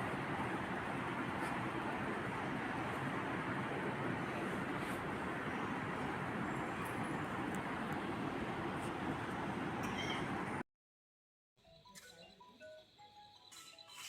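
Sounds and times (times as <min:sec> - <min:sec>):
soft music: 0:11.6 - 0:14.0.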